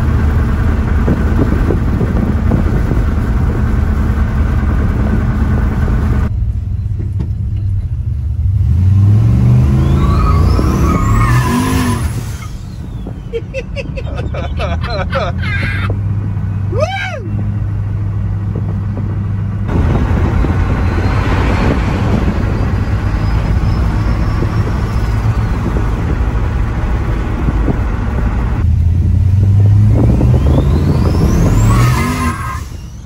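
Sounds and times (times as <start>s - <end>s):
truck engine pulling hard: 0.0s - 33.0s
turbo whistle rising: 29.9s - 33.0s.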